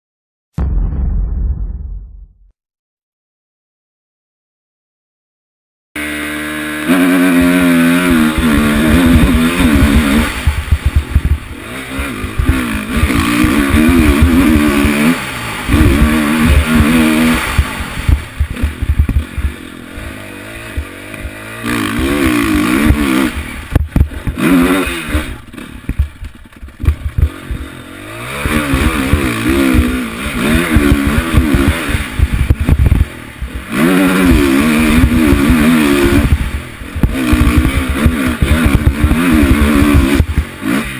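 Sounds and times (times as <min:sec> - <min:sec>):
low rumbling buffets: 0:00.6 - 0:02.5
motocross engine revving: 0:06.0 - 0:40.9.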